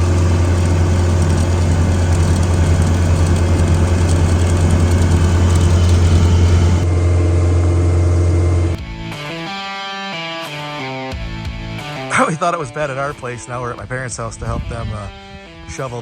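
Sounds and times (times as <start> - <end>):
engine humming: 0.0 - 8.8.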